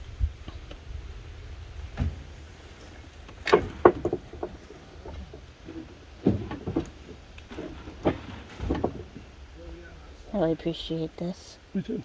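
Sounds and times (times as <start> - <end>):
low steady rumble: 0.0 - 12.0
knocks and thuds: 1.9 - 2.4, 3.3 - 9.4.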